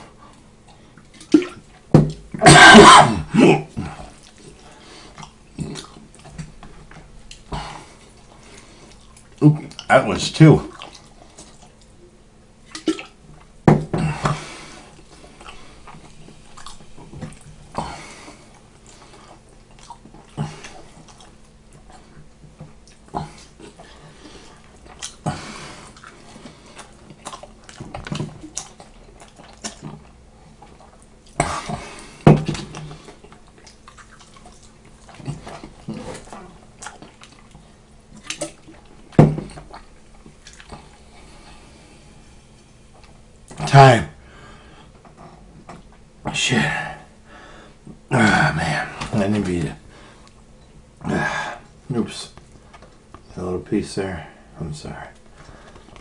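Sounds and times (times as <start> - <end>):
wet chewing and smacking: 3.8 - 9.9, 10.7 - 12.0, 14.2 - 41.7.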